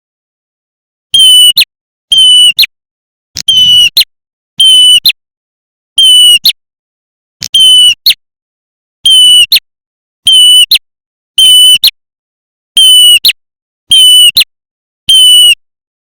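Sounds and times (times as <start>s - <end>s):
harsh bird lure calls: 3.4s - 5.0s.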